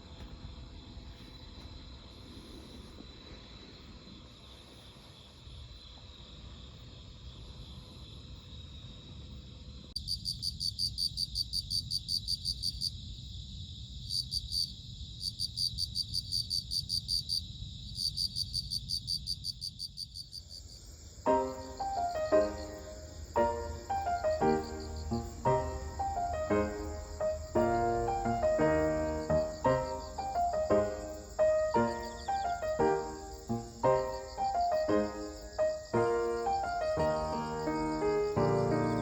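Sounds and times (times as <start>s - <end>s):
cricket chirping in pulses: 0.0s - 39.0s
faint cricket trill: 0.0s - 39.0s
music: 21.3s - 39.0s.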